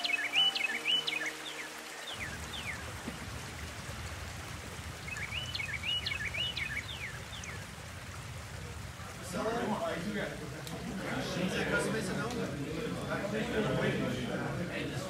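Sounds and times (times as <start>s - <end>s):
songbird chirping: 0.0s - 9.2s
rushing outdoor background: 0.0s - 15.0s.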